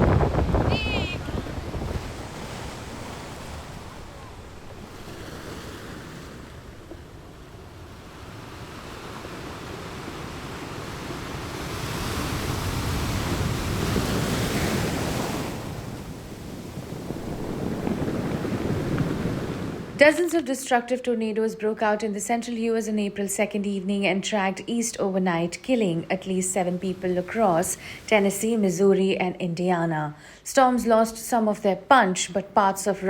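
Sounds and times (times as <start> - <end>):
strong wind buffeting microphone: 0.0 - 20.0.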